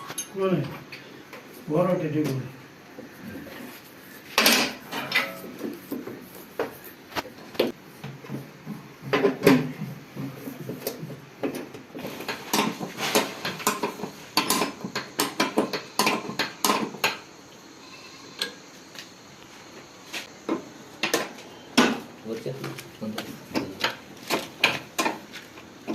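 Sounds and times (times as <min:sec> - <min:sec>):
metal tools clinking and clanking: 0:00.0 - 0:00.7, 0:04.4 - 0:05.6.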